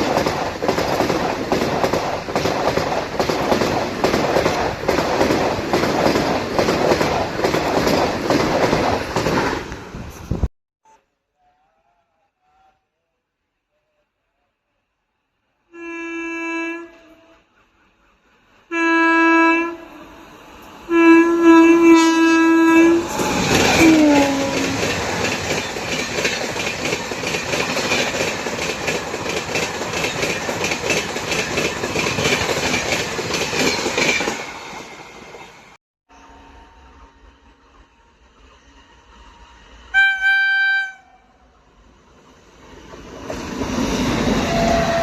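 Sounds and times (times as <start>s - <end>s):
locomotive horn blasts: 15.7s - 17.4s, 18.7s - 20.2s, 20.9s - 24.8s, 39.9s - 41.5s.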